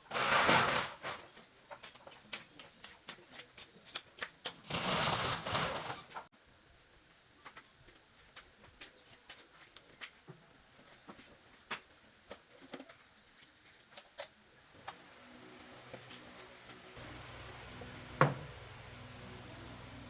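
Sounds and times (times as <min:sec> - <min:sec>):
low hum: 0:15.1 - 0:20.0.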